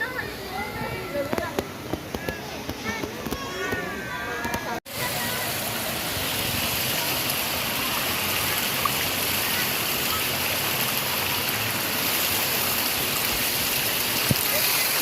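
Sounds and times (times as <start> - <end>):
stream water rushing: 4.9 - 15.0.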